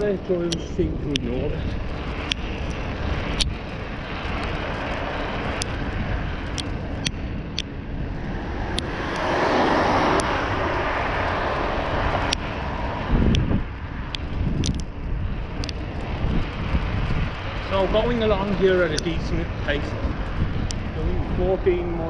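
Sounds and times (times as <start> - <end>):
car passing: 0.0 - 22.0
wind and road noise: 0.0 - 22.0
light clicks from bicycle: 0.4 - 7.7, 12.2 - 12.5, 13.2 - 21.0.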